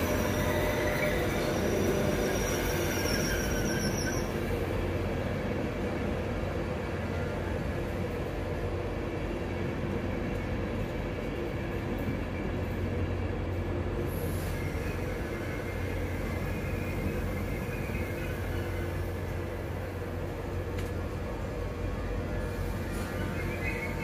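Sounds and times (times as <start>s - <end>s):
passenger train humming: 0.0s - 24.0s.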